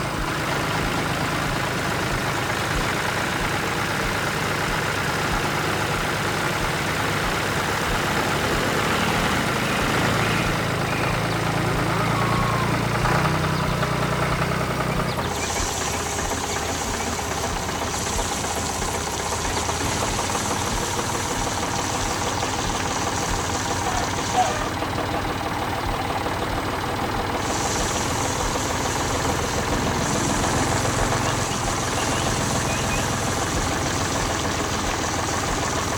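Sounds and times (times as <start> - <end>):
farm machine engine knocking: 0.0 - 35.9
high even hiss: 15.0 - 25.0, 27.2 - 35.9.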